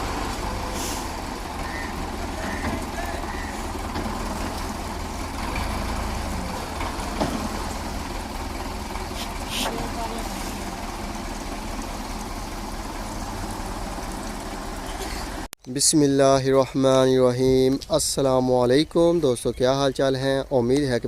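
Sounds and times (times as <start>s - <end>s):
truck engine idling: 0.0s - 15.5s.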